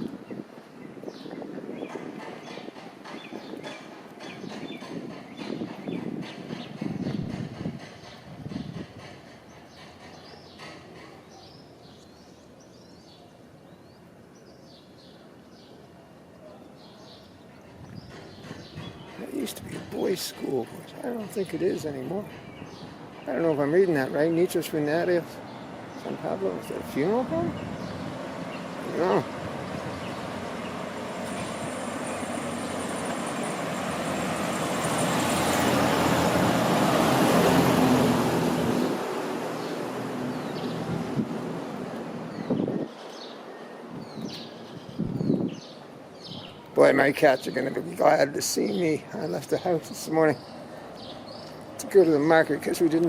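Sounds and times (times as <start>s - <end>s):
birds chirping: 0.0s - 53.0s
vehicle passing on street: 18.3s - 44.7s.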